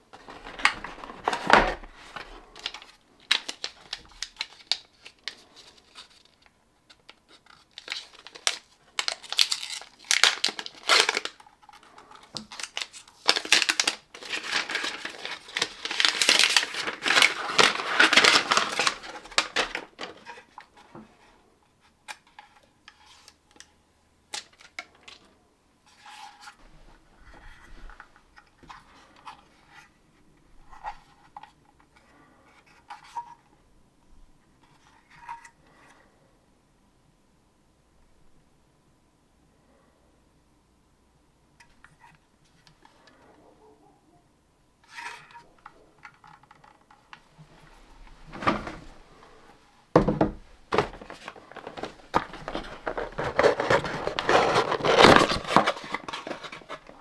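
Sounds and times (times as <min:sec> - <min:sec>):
packaging rustling and tearing: 0:00.0 - 0:06.4, 0:07.1 - 0:20.4, 0:50.0 - 0:57.0.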